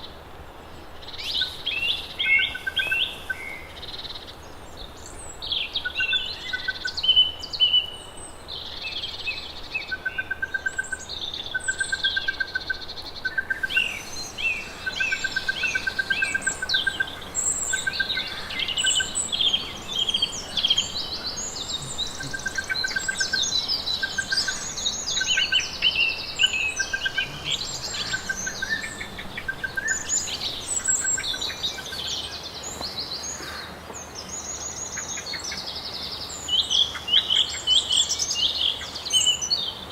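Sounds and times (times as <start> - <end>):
birds chirping and warbling: 0.0 - 39.8
bird repeating fast trills: 13.3 - 31.6.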